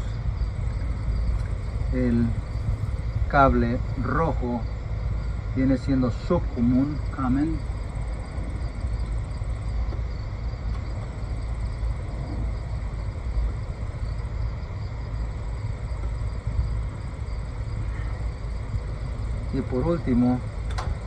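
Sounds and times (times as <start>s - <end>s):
faint high whine: 0.0s - 21.0s
steady low rumble: 0.0s - 21.0s.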